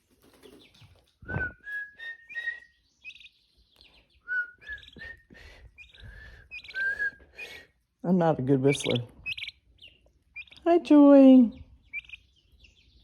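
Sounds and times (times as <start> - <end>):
person whistling: 1.2 - 2.7, 4.3 - 7.2
high bird chirps: 2.0 - 7.7, 8.7 - 10.8, 11.5 - 13.0.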